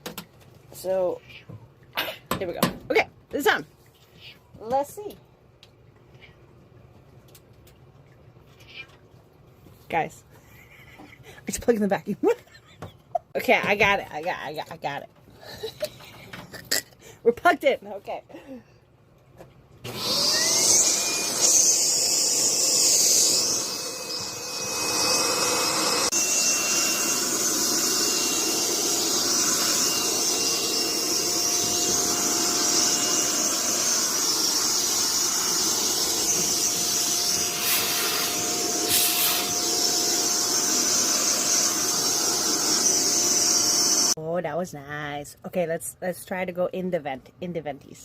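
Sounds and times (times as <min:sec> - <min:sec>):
vacuum cleaner motor whine: 0:19.9 - 0:44.2.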